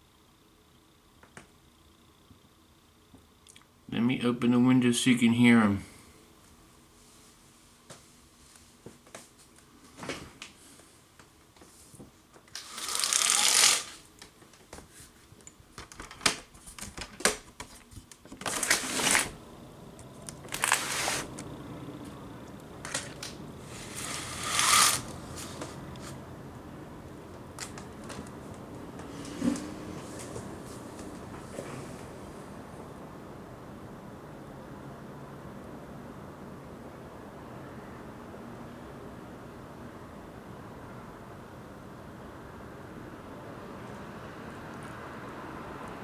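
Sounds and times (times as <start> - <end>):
outdoor background noise: 0.0 - 46.0
window scraping: 12.6 - 14.0, 18.4 - 22.2, 22.8 - 26.2, 29.0 - 30.4.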